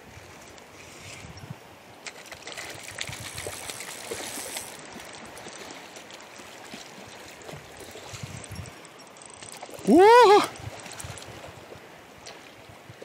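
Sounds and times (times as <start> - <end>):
small clicks and splashes: 2.0 - 13.0
river rapids running: 8.7 - 12.1.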